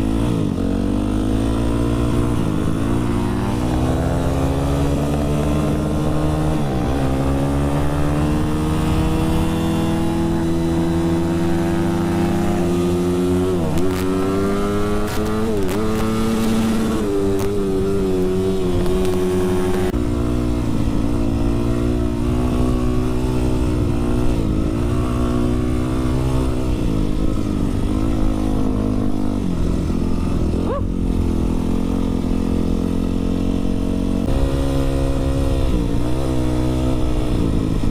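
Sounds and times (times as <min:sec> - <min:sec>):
dirt bike engine revving: 0:00.0 - 0:37.9
low wind rumble: 0:00.0 - 0:37.9.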